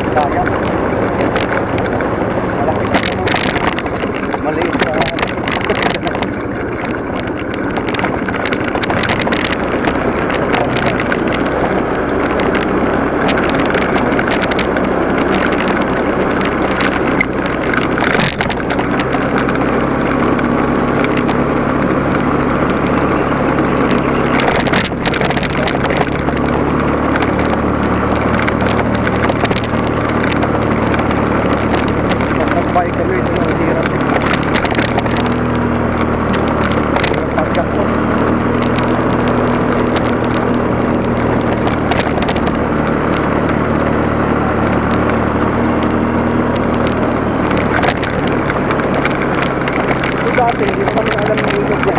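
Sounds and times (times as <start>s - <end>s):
motorcycle engine running: 0.0s - 51.9s
wind rushing over microphone: 0.0s - 51.9s.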